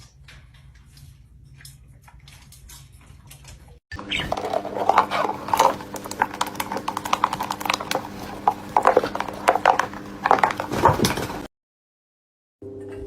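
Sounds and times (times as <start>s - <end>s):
parrot squawking and chirping: 3.9s - 5.9s.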